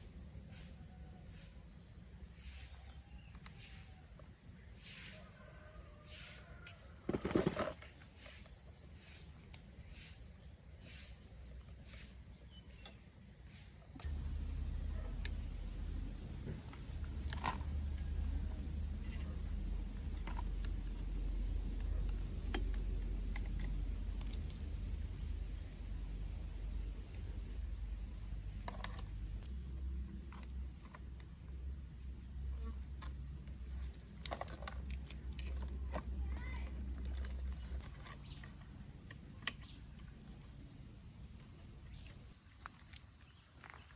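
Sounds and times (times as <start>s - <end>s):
crickets trilling: 0.0s - 43.9s
steady low rumble: 14.0s - 28.7s.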